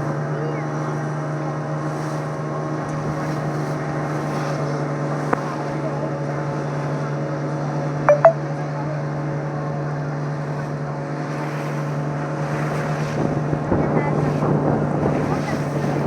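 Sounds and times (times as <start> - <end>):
boat engine droning: 8.8 - 16.0.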